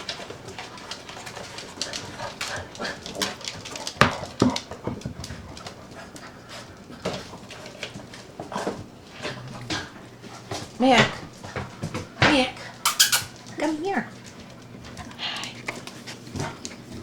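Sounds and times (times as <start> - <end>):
puppies panting: 12.9 - 13.3
puppies whimpering: 12.9 - 13.3.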